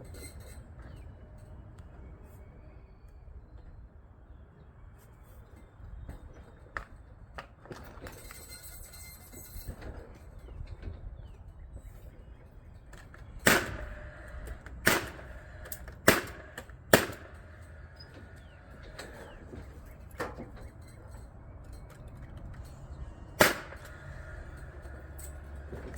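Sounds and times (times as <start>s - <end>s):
nail gun firing: 13.4s - 17.5s, 23.4s - 24.3s.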